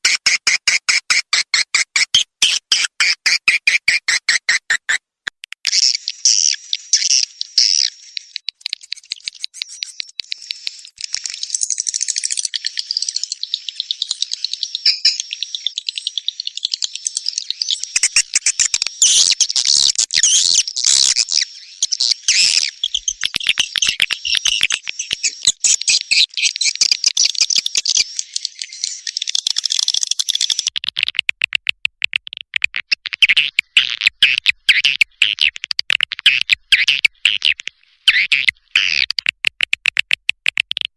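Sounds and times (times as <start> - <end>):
swiftlets chirping and twittering: 5.7 - 30.7.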